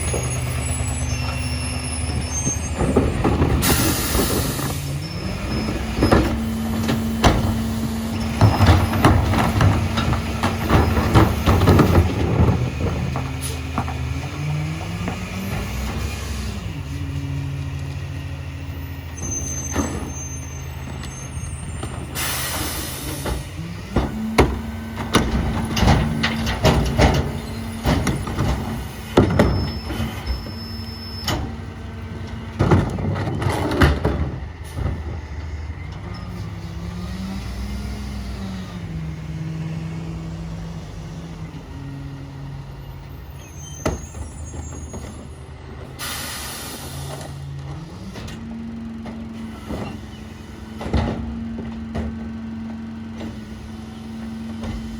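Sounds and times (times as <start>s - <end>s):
refuse clattering and banging: 0.0s - 18.2s, 19.2s - 41.8s, 43.8s - 54.9s
garbage truck diesel engine: 0.0s - 54.9s
air brake hiss: 22.2s - 23.2s, 46.0s - 47.2s.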